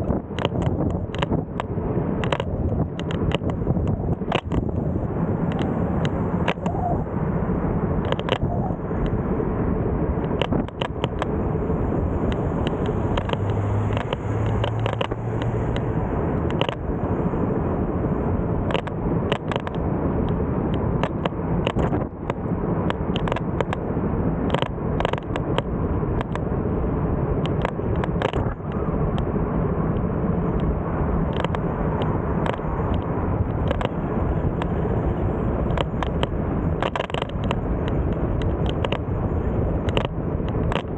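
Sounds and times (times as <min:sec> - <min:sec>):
bike clicks and rattles: 0:00.0 - 0:04.8, 0:08.0 - 0:09.1, 0:10.2 - 0:11.3, 0:12.2 - 0:16.8, 0:18.6 - 0:19.8, 0:20.7 - 0:26.4, 0:27.4 - 0:29.3, 0:30.5 - 0:40.9
road and wind noise: 0:00.0 - 0:40.9.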